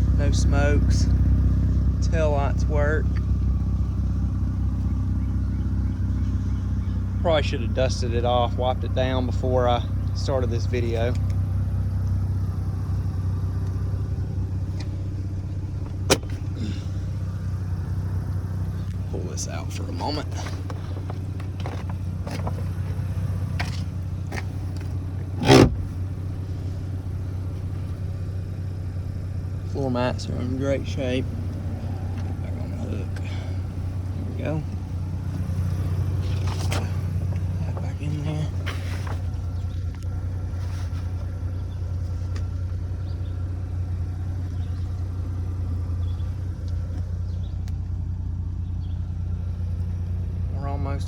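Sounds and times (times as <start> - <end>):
rotary engine idling: 0.0 - 51.0
sharp thump: 15.8 - 16.6.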